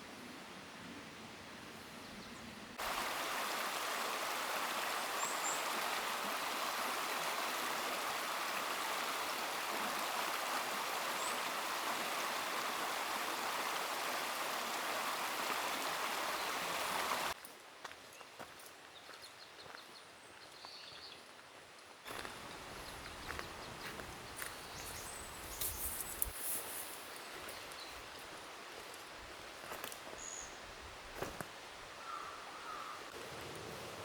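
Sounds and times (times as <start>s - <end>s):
faint outdoor ambience: 0.0s - 34.0s
stream water rushing: 2.8s - 17.4s.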